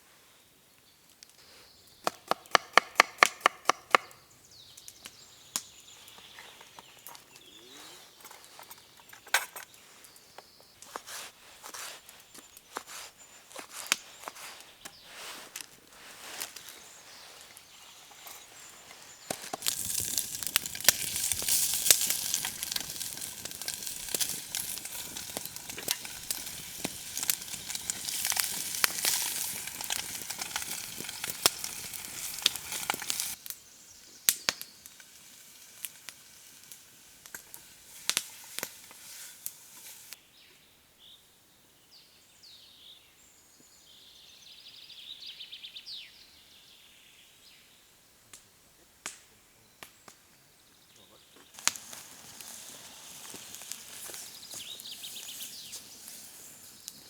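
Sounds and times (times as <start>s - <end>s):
fire crackles: 0.8s - 40.2s, 48.0s - 57.0s
food sizzling over campfire: 1.2s - 40.2s, 50.8s - 57.0s
faint chirps: 4.3s - 15.4s.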